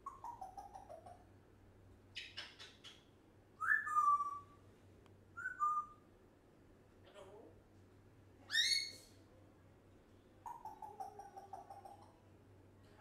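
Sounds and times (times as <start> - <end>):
parrot raspy chatter: 0.0 - 1.2, 10.4 - 12.2
parrot whistle: 3.6 - 4.5, 5.4 - 6.0.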